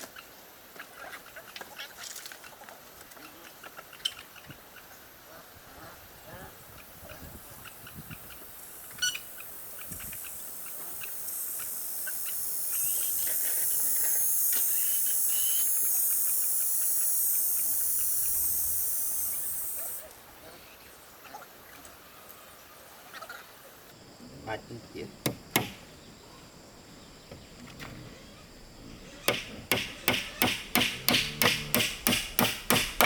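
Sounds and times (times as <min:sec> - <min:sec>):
high steady hiss: 0:08.2 - 0:21.3, 0:22.1 - 0:33.0.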